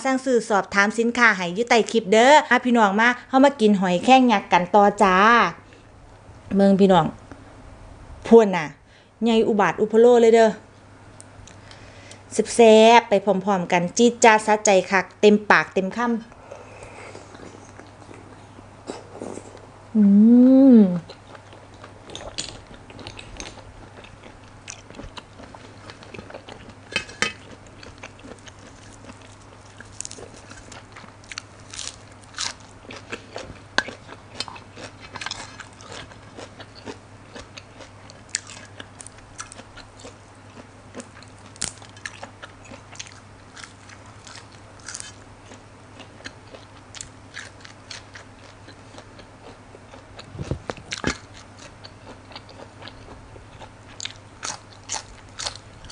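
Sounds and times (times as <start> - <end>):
steady low hum: 0.0 - 55.9
mouth chewing crunchy food: 16.4 - 19.7, 21.0 - 55.9.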